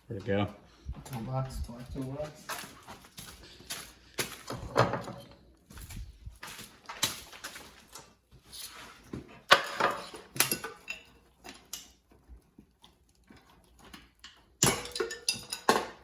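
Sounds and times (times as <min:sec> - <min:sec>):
metal hand tools clanking: 0:14.6 - 0:16.0.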